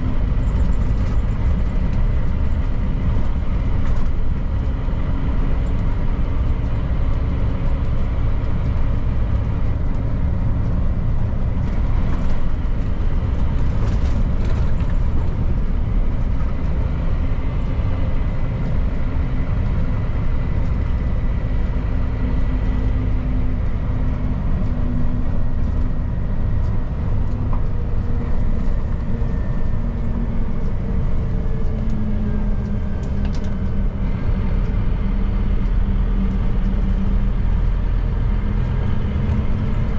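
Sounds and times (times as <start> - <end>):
road and tyre noise: 0.0 - 39.9
truck engine rumble: 0.0 - 39.9.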